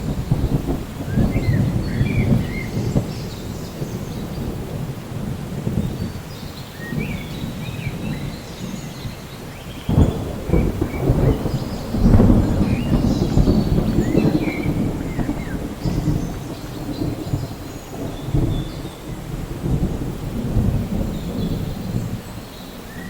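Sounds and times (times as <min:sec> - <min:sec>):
steady rain: 0:00.0 - 0:23.0
thunder rumbling and cracking: 0:00.0 - 0:23.0
birds chirping: 0:05.7 - 0:19.8.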